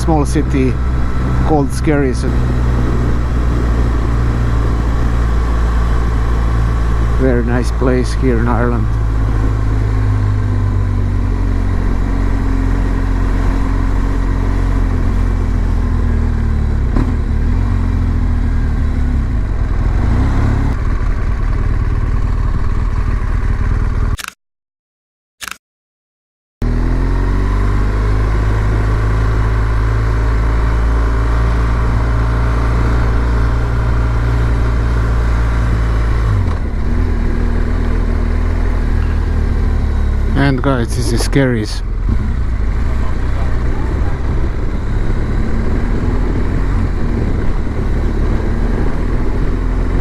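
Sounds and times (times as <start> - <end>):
motorcycle engine while riding: 0.0 - 24.4, 26.6 - 50.0.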